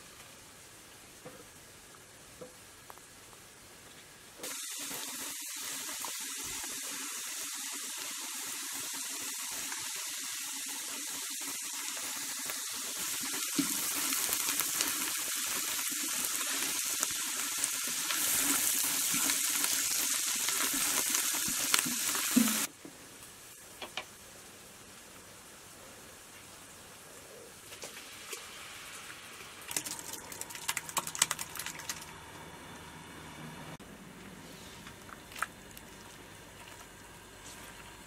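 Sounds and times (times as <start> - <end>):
vegetables sizzling in hot oil: 4.4 - 32.0.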